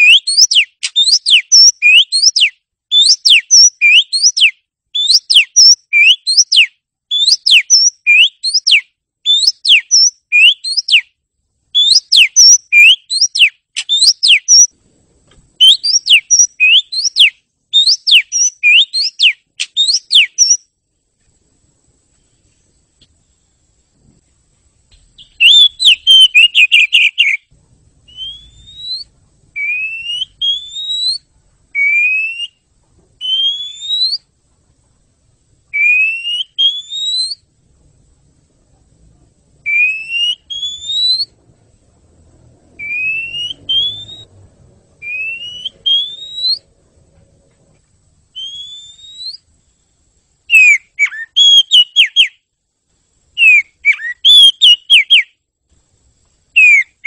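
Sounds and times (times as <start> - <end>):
bird whistling rising notes: 0.0 - 11.0, 11.8 - 14.7, 15.6 - 20.6, 25.2 - 32.6, 33.2 - 34.3, 35.7 - 37.5, 39.6 - 41.4, 42.7 - 44.4, 45.0 - 46.7, 48.3 - 49.5, 50.5 - 52.4, 53.4 - 55.3, 56.6 - 57.0
bird chattering: 25.2 - 27.4.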